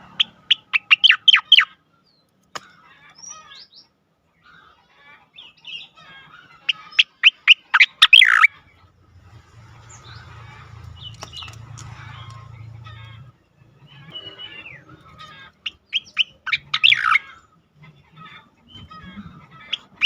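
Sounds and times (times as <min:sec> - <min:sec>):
bird whistling and warbling: 0:00.2 - 0:01.7, 0:06.7 - 0:08.5, 0:13.8 - 0:17.4.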